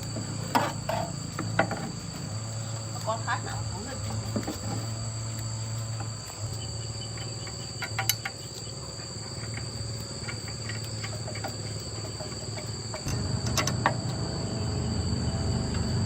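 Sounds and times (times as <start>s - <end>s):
insects chirring: 0.0s - 16.0s
low hum: 13.0s - 16.0s.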